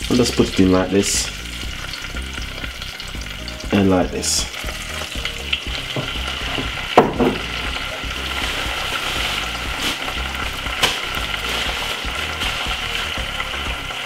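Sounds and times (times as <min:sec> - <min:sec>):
fish sizzling in oil: 0:00.0 - 0:14.0
sharp knock: 0:06.0 - 0:07.4.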